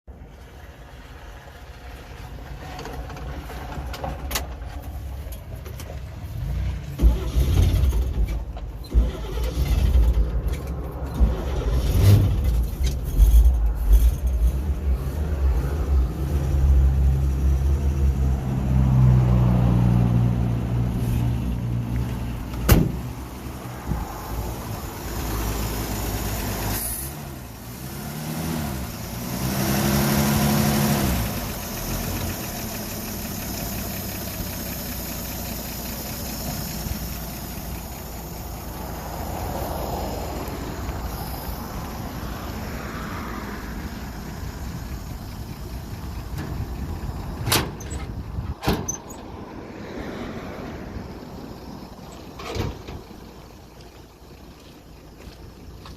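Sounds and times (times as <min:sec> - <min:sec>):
truck engine revving: 0:06.2 - 0:49.5.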